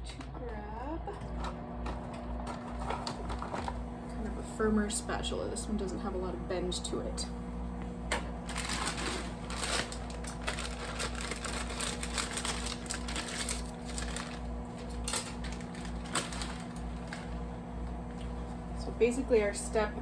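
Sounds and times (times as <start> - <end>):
microwave oven humming: 0.0 - 20.0
utensils clicking and rustling: 8.5 - 17.3.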